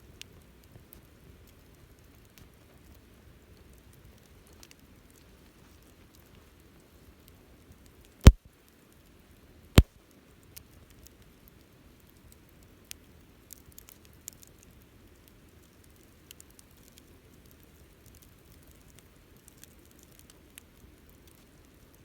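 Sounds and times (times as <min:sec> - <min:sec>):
wood fire crackling: 0:11.0 - 0:22.0.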